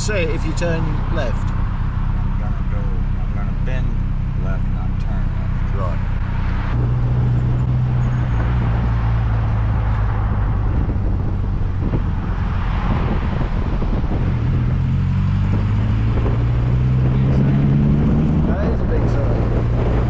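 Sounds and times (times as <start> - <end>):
small car engine running: 0.0 - 12.5
road noise: 0.0 - 20.0
wind noise: 6.7 - 20.0.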